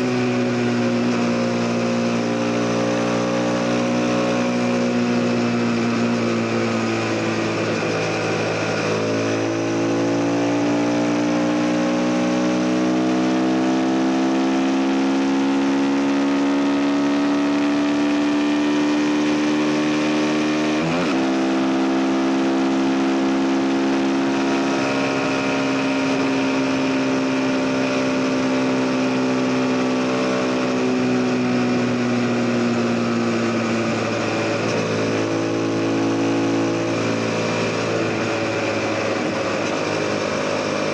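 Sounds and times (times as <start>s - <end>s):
motorcycle engine running: 24.2s - 40.9s.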